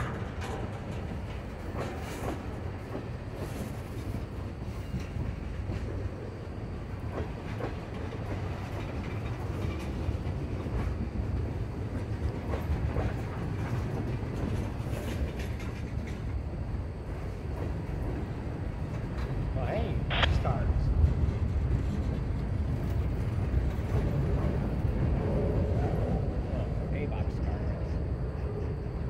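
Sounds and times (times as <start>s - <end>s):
wheels clicking over rail joints: 0.0s - 6.2s, 6.9s - 16.6s
freight train wheels rumbling: 0.0s - 29.0s.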